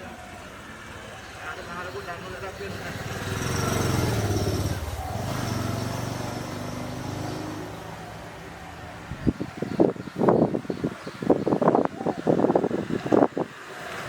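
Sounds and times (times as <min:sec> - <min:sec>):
vehicle engine passing: 0:00.0 - 0:10.4.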